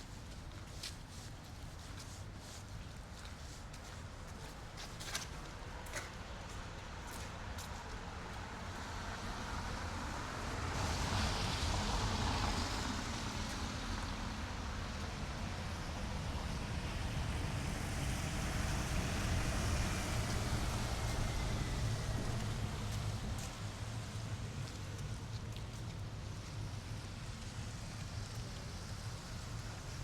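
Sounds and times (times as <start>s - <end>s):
passing vehicle: 8.5s - 25.4s
steady low rumble: 17.4s - 29.8s.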